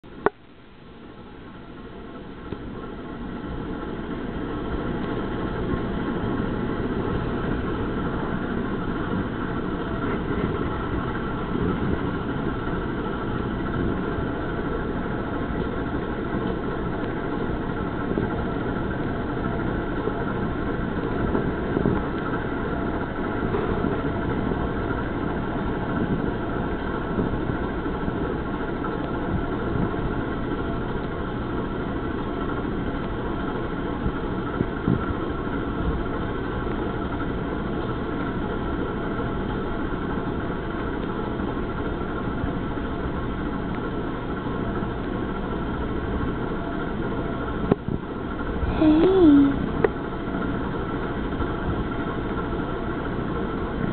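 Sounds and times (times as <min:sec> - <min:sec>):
kitten purring: 0:48.6 - 0:49.6.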